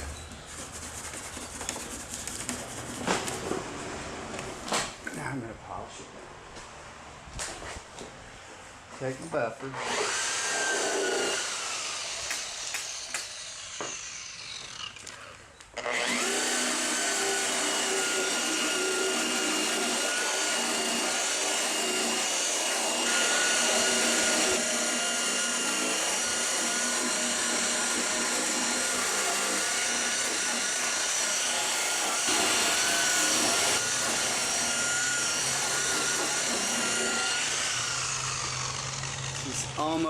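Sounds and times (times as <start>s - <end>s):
power buffer motor whine: 15.8s - 40.0s.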